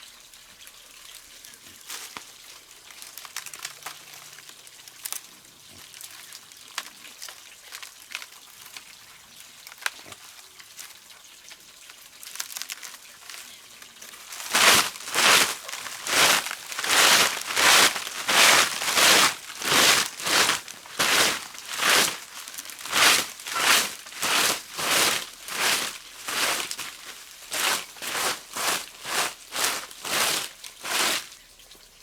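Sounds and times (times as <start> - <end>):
light crackling: 14.1 - 31.3
rhythmic scraping strokes: 14.3 - 31.2.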